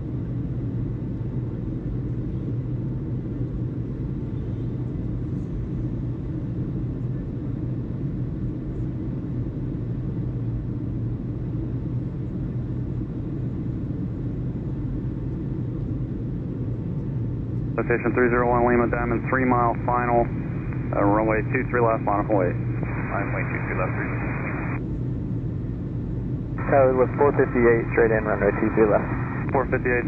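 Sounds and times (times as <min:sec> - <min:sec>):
low rumble with hum: 0:00.0 - 0:30.0.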